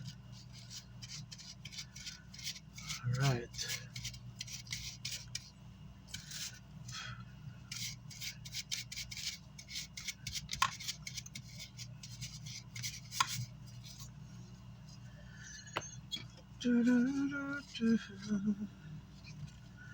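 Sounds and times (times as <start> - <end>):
brush scrubbing circuit board: 0.0 - 5.5, 7.7 - 14.1
low steady hum: 0.0 - 19.9.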